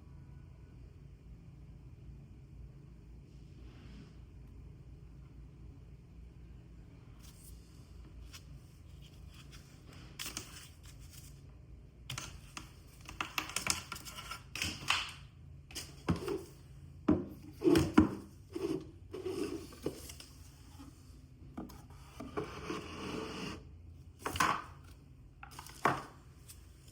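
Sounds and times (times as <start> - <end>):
packaging rustling and scraping: 17.5 - 21.0.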